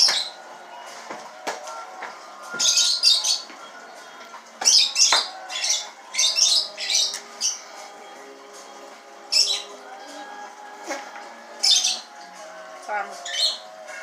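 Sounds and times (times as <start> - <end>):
bird squawking and chirping: 2.6 - 7.8, 9.3 - 10.4, 11.6 - 12.1, 13.2 - 13.7.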